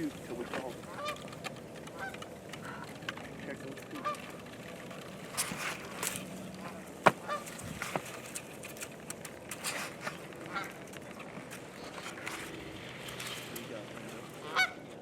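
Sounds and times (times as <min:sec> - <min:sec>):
steady field noise: 0:00.0 - 0:15.0
goose honking and clucking: 0:00.8 - 0:03.0, 0:03.8 - 0:04.4, 0:06.6 - 0:07.7, 0:10.2 - 0:10.9, 0:14.0 - 0:15.0.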